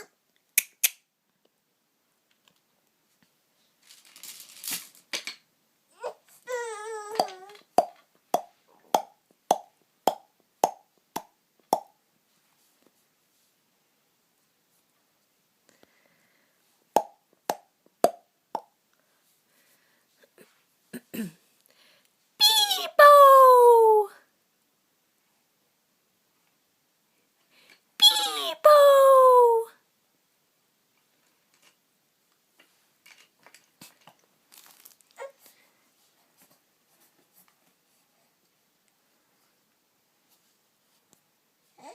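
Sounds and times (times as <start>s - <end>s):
faint clicks and rustles: 2.2s - 5.2s, 30.9s - 41.3s.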